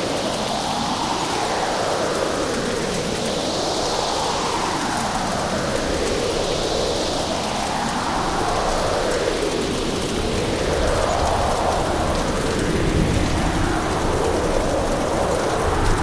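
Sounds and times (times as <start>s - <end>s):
gusting wind: 3.8s - 16.0s
heavy rain pouring: 10.0s - 16.0s.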